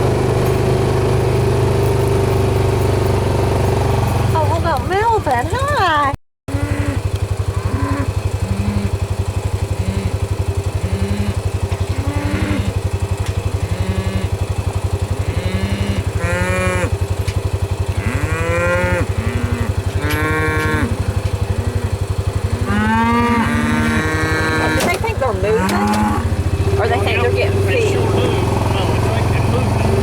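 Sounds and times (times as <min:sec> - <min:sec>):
engine chugging: 0:00.0 - 0:30.0
cows mooing: 0:06.5 - 0:30.0.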